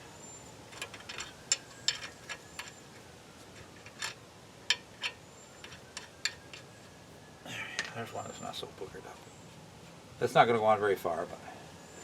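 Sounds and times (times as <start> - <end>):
small metal parts clinking: 0.7 - 2.8, 3.6 - 6.7.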